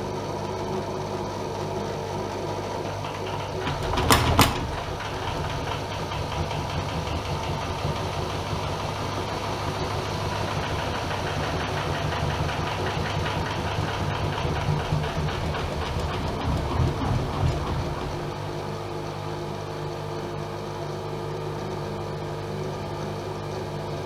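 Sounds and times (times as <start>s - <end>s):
washing machine running: 2.0s - 19.7s.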